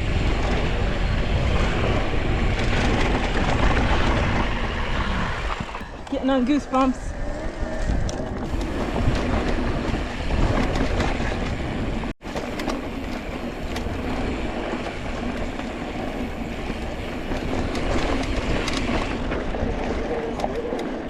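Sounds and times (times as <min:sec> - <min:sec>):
bike clicks and rattles: 0:00.0 - 0:21.0
bike tyres crunching on dirt: 0:06.5 - 0:21.0.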